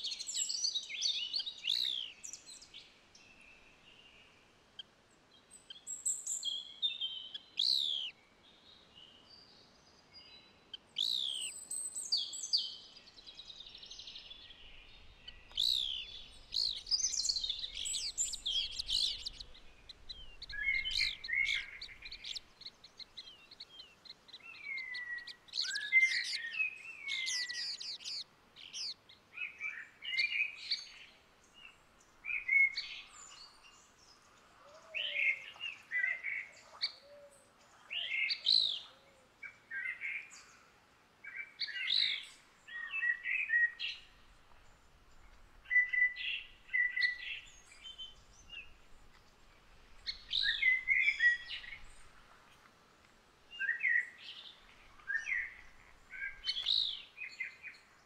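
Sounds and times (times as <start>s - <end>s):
songbird chirps and whistles: 0.0s - 4.2s, 10.2s - 34.0s, 41.3s - 52.2s, 53.5s - 57.9s.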